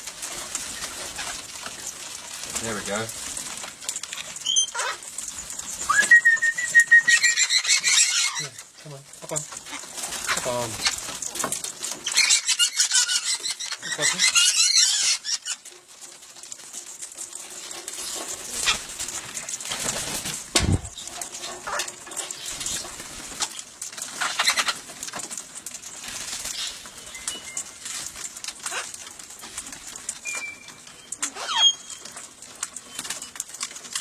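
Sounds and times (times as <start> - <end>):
parrot wings flapping: 17.4 - 30.4.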